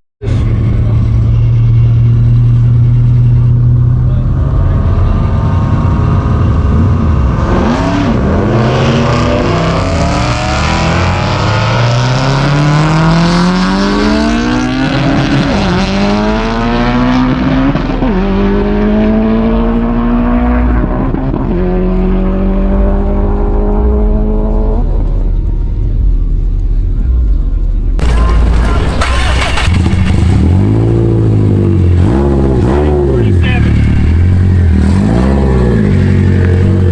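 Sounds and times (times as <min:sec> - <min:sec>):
car engine revving through gears: 0:03.8 - 0:25.2, 0:28.0 - 0:36.9
gear upshifts: 0:28.0 - 0:36.9.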